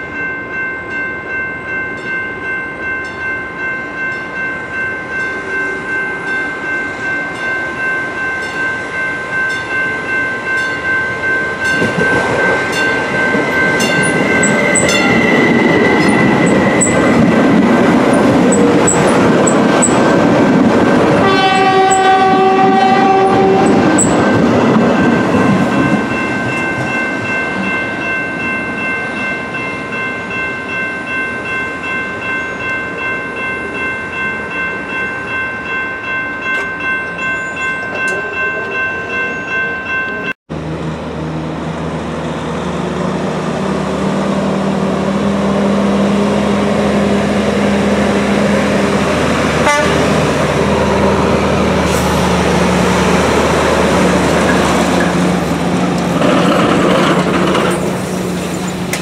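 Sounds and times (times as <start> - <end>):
train passing with ringing tone: 0.0 - 59.0
train horn: 21.2 - 24.2, 49.6 - 50.3
distant train engine humming: 40.5 - 59.0.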